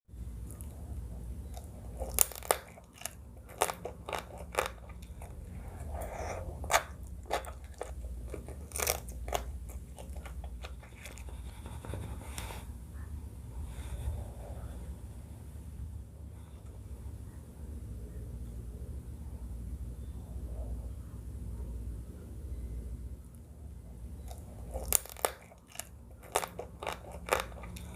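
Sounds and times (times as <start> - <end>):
steady low hum: 0.1 - 27.9
crunchy bites and chewing: 1.4 - 11.4, 24.2 - 27.9.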